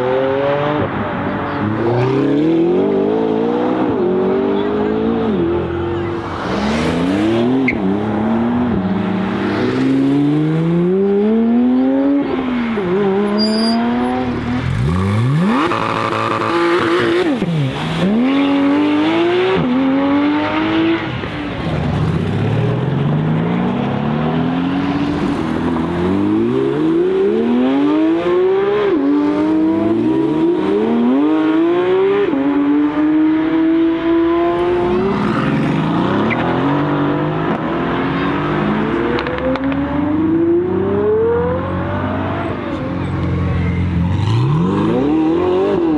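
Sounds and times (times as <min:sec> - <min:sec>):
sports car engines revving: 0:00.0 - 0:45.9
car passing by: 0:06.1 - 0:10.9.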